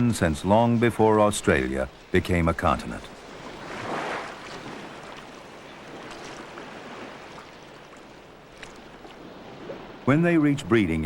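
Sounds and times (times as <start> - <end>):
sea waves washing: 0.0 - 11.0.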